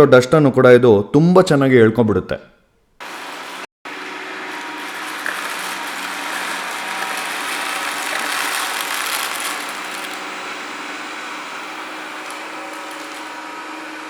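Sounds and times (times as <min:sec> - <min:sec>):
robot vacuum cleaner whirring: 0:03.1 - 0:14.0.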